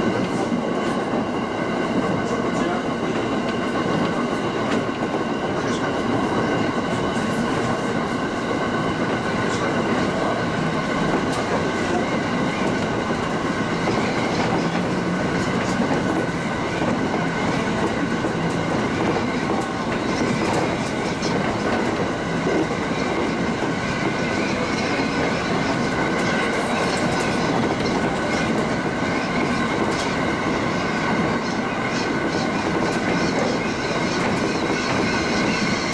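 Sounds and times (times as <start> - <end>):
rail-joint clicks: 0.0 - 35.9
train wheels rumbling on rails: 0.0 - 35.9.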